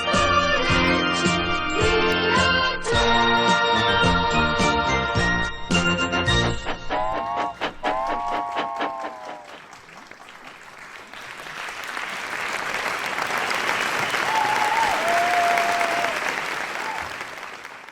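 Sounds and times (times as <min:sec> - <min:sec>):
audience applauding: 0:06.9 - 0:17.9.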